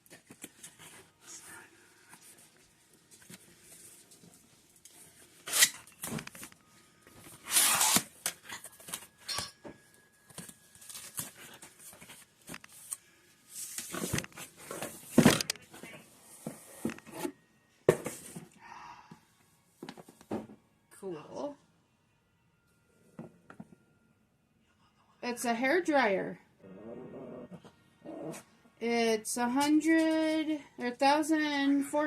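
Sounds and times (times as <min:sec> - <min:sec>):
packaging tearing and rustling: 0:07.4 - 0:09.2, 0:10.4 - 0:11.7.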